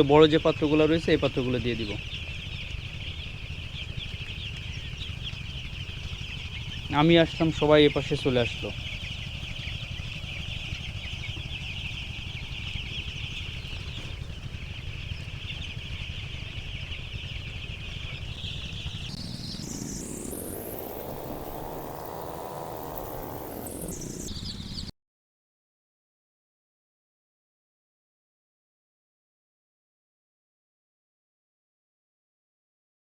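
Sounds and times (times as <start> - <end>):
chicks peeping: 0.0 - 24.9
sharp upward pitch sweep: 18.4 - 24.9.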